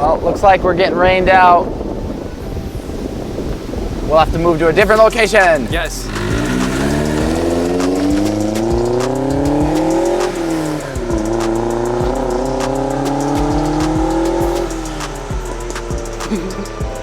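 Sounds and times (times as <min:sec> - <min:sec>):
car engine accelerating: 0:03.6 - 0:17.0
music with a beat: 0:04.8 - 0:17.0.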